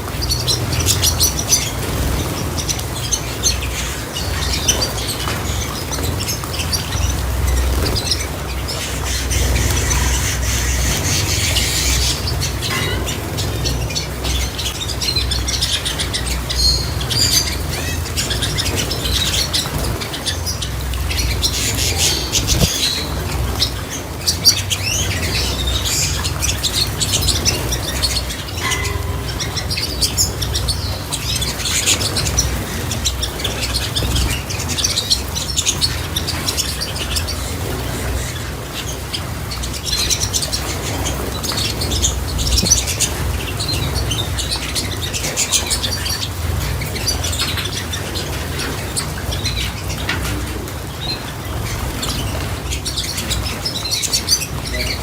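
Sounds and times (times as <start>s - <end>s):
small birds chirping: 0.0s - 55.0s
wing flutters: 17.3s - 25.8s.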